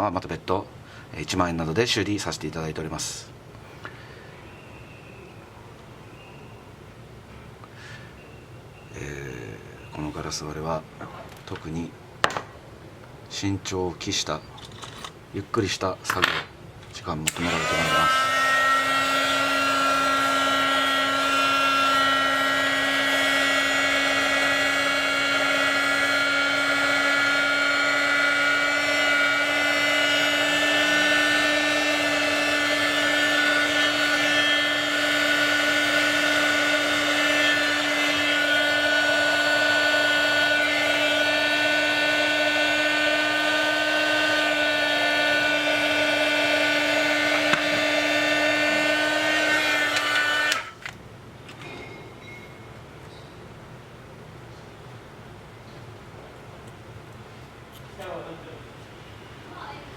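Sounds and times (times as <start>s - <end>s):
electric motor tool humming: 17.3s - 50.9s.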